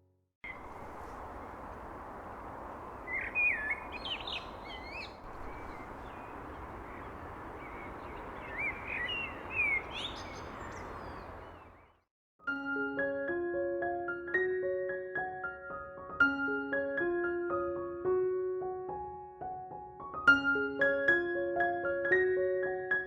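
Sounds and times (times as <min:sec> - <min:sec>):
steady outdoor hiss: 0:00.5 - 0:11.8
birds chirping and whistling: 0:00.5 - 0:12.0
piano music: 0:12.5 - 0:23.0.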